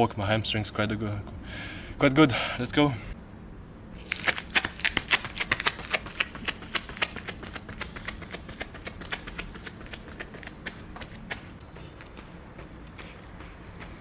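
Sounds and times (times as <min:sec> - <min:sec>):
running footsteps: 0:00.0 - 0:03.2, 0:04.2 - 0:14.0.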